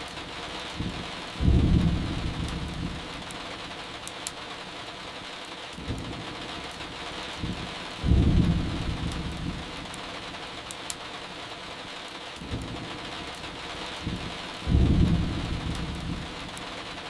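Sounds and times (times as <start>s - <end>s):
firewood crackling: 0.0s - 17.0s
steady rain: 0.0s - 17.0s
thunder rumbling: 0.2s - 3.8s, 5.8s - 10.3s, 12.4s - 17.0s.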